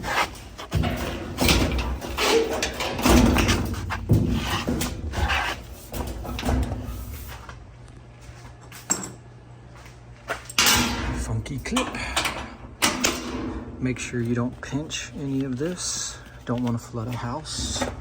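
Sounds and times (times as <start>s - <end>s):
washer cabinet knocks and scrapes: 0.0s - 7.4s.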